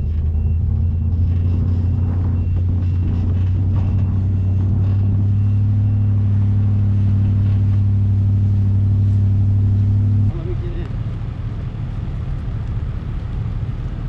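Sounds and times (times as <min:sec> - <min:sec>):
faint high beeps: 0:00.0 - 0:07.1
engine droning: 0:00.0 - 0:14.0.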